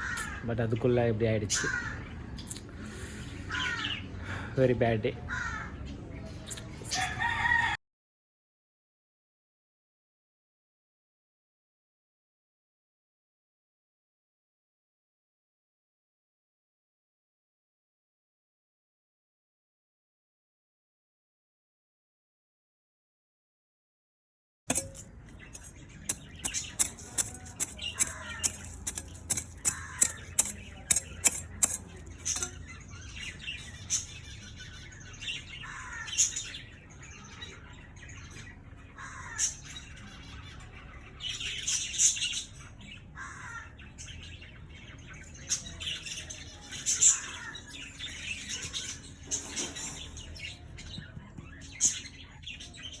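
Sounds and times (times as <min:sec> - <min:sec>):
birds chirping and squawking: 0:00.0 - 0:07.8, 0:24.7 - 0:53.0.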